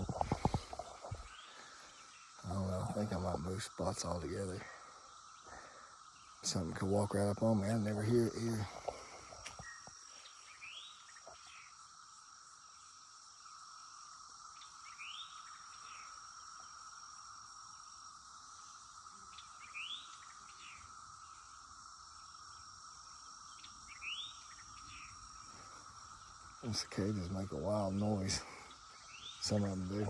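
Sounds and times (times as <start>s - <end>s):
cicadas droning: 0.0s - 30.0s.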